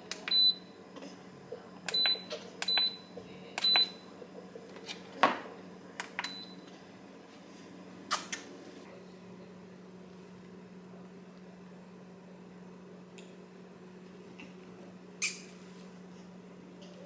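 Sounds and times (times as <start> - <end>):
steady low hum: 0.0 - 17.0
keypad beeps with clicks: 0.3 - 0.6, 1.9 - 3.0, 3.6 - 4.0, 6.2 - 6.6.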